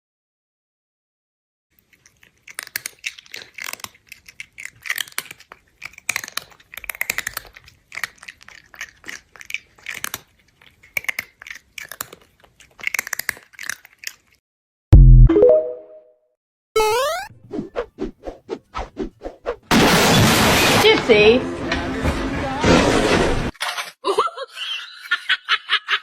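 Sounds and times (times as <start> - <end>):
crisp crunching: 1.8 - 14.4.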